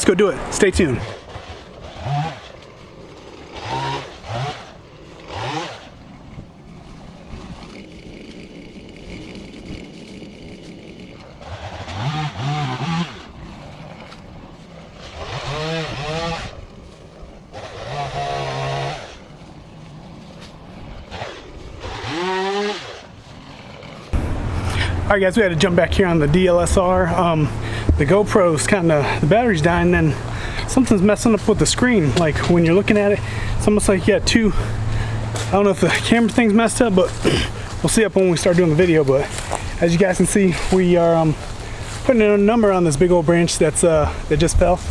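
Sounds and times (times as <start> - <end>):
engine revving: 0.0 - 2.5, 3.4 - 6.0, 11.4 - 13.7, 15.0 - 16.6, 17.5 - 19.2, 21.1 - 23.1, 24.1 - 43.9.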